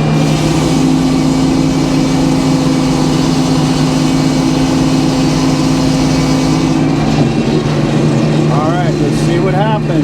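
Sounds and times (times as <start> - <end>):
sawmill engine running: 0.0 - 10.0.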